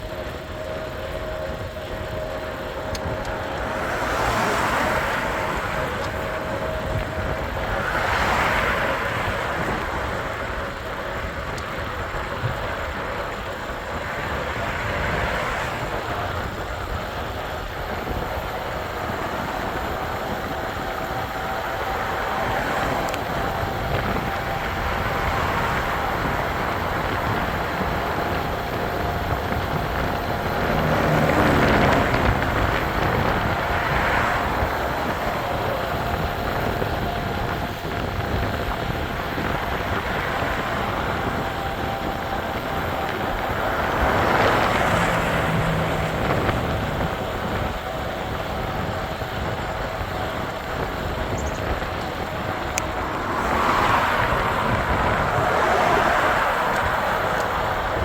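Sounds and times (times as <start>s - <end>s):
vehicles passing on road: 0.0s - 58.0s
wind: 0.0s - 58.0s.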